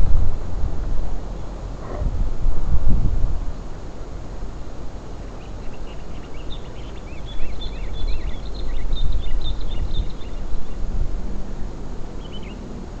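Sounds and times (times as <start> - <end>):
wind on microphone: 0.0 - 13.0
small birds chirping: 5.1 - 12.8.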